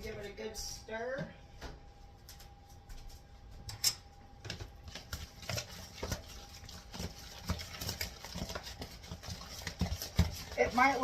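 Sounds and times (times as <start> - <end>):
spoon stirring thick mixture: 4.4 - 11.0.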